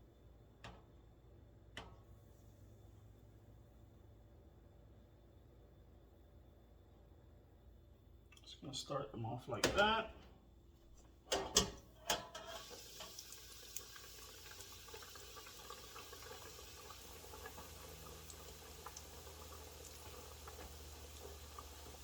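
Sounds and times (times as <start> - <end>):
chicken deep-frying in oil: 12.1 - 22.0.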